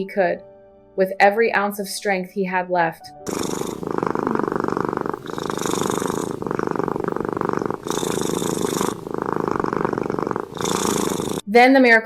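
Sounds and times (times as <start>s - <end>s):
cat purring: 3.3s - 11.5s.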